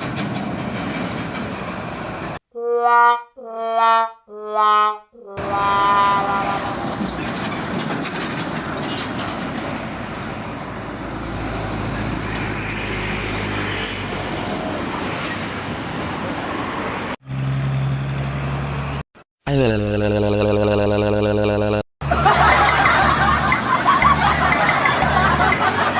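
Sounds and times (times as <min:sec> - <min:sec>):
big trucks rumbling: 0:00.0 - 0:02.4, 0:05.4 - 0:19.0, 0:22.0 - 0:25.9
low engine drone: 0:19.6 - 0:25.9.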